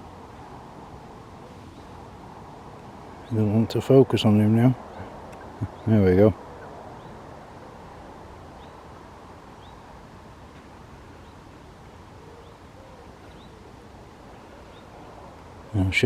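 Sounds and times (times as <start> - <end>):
outdoor background noise: 0.0 - 16.0
small bird chirping: 8.5 - 8.8, 9.6 - 9.9, 12.2 - 15.4.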